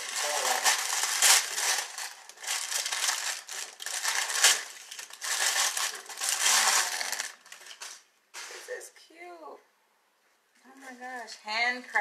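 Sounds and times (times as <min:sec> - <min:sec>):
packing paper rustling: 0:00.0 - 0:08.8.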